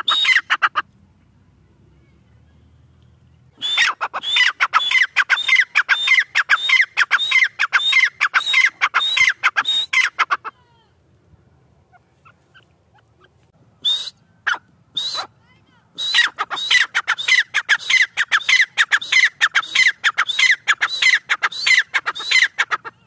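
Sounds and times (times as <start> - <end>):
bird calling sharply: 3.6 - 10.6, 11.9 - 15.4, 16.0 - 23.0.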